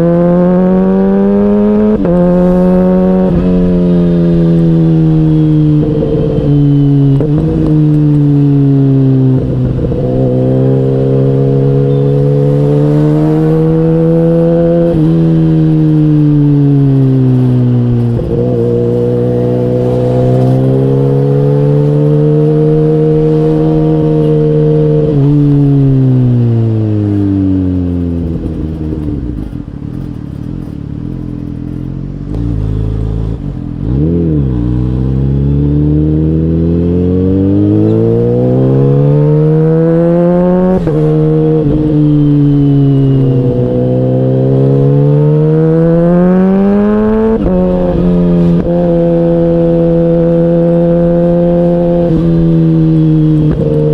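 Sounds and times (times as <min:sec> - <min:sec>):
motorcycle engine revving through gears: 0:00.0 - 0:53.9.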